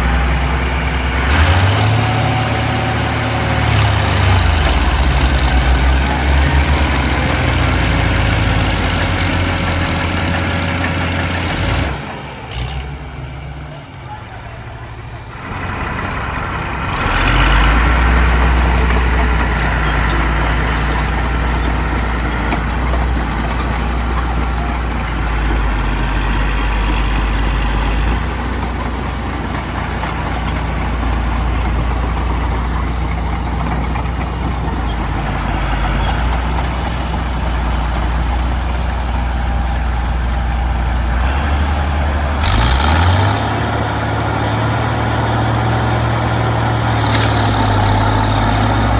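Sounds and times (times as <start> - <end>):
crawler tractor diesel engine: 0.0 - 48.9.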